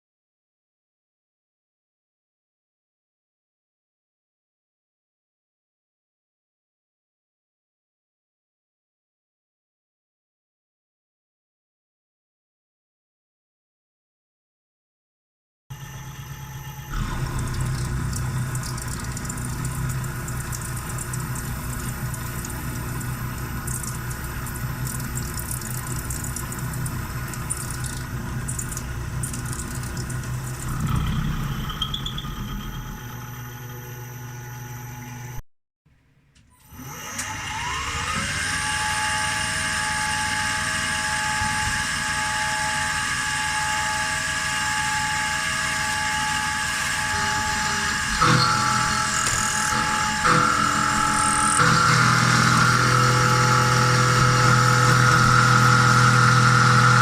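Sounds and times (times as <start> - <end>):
milling machine humming: 15.7 - 35.4, 36.8 - 57.0
spindle spinning up with whine: 15.7 - 35.4, 37.0 - 57.0.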